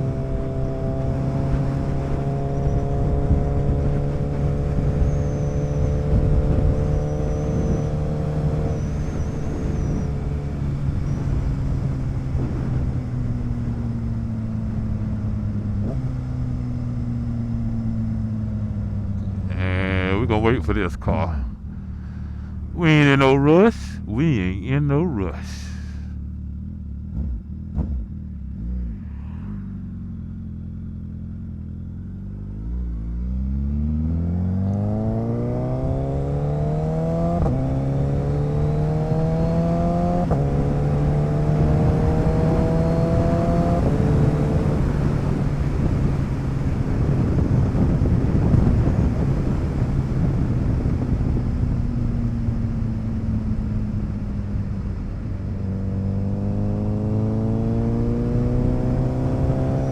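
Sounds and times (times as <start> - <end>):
motorcycle engine accelerating: 26.4 - 45.8, 55.7 - 59.9.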